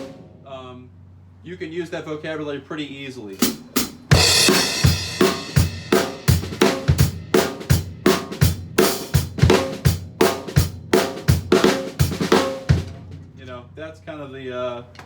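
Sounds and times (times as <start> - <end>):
snare drum: 3.4 - 13.0
bass drum: 3.4 - 13.4.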